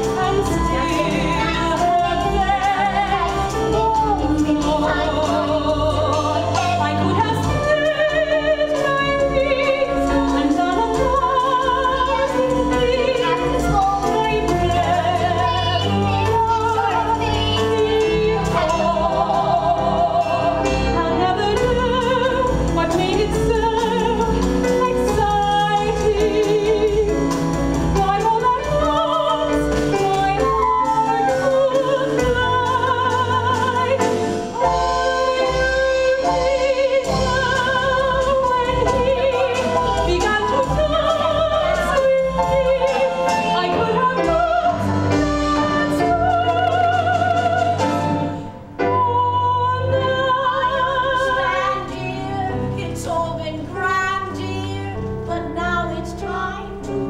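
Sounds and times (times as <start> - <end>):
woman singing operatically: 0.0 - 27.2, 28.0 - 48.1, 48.8 - 56.9
orchestral accompaniment: 0.0 - 57.0.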